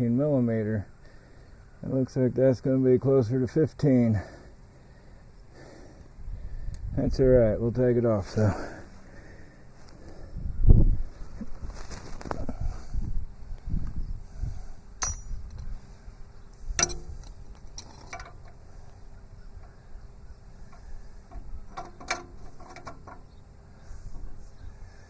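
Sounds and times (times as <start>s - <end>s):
hand tools clinking on metal: 15.0s - 15.7s, 16.7s - 18.8s, 20.7s - 23.4s.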